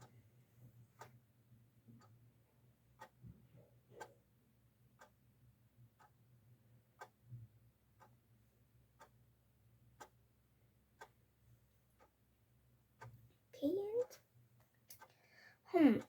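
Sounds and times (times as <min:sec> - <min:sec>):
clock ticking: 0:02.0 - 0:02.2, 0:03.0 - 0:03.2, 0:04.0 - 0:04.2, 0:05.0 - 0:05.2, 0:06.0 - 0:06.2, 0:07.0 - 0:07.3, 0:08.0 - 0:08.2, 0:09.0 - 0:09.2, 0:10.0 - 0:10.2, 0:11.0 - 0:11.2, 0:12.0 - 0:12.2, 0:13.0 - 0:13.2.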